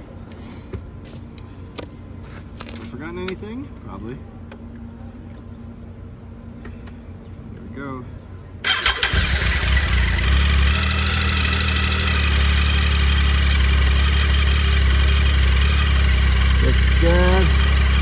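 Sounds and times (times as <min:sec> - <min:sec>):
electric starter cranking: 0:08.7 - 0:11.8
motorcycle engine idling: 0:08.7 - 0:18.0.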